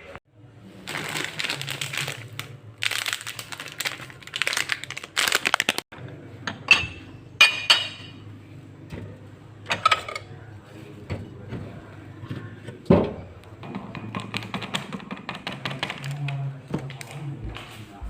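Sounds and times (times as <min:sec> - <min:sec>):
crinkling and rustling: 0:00.8 - 0:05.8.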